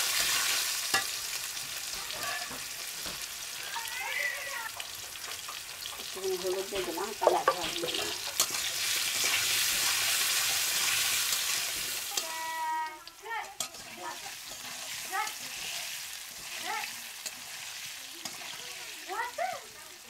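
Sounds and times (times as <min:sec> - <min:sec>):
metal spatula scraping wok: 0:00.0 - 0:03.4, 0:05.0 - 0:12.3, 0:13.4 - 0:18.8
potatoes frying in hot oil: 0:00.0 - 0:20.0.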